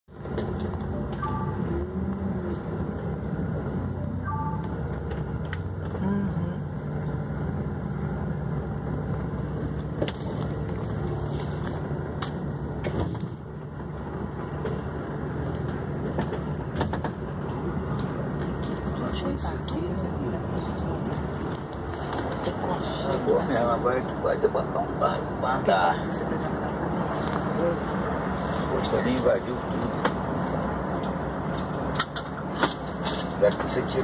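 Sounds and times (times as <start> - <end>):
car engine running: 0.1 - 34.0.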